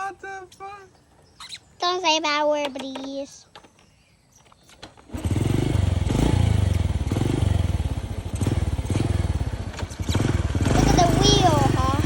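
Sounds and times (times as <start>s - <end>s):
small engine running: 5.0s - 12.0s.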